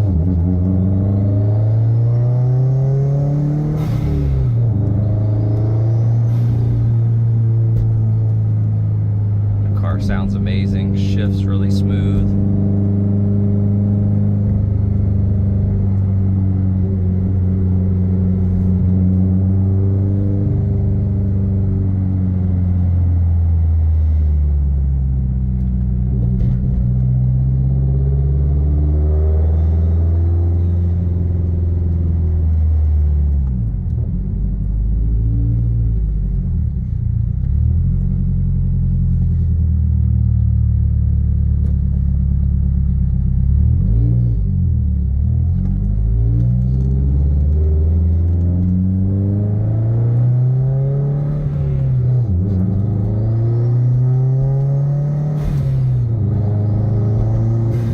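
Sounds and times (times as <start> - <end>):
car engine revving: 0.0 - 24.2, 41.6 - 57.9.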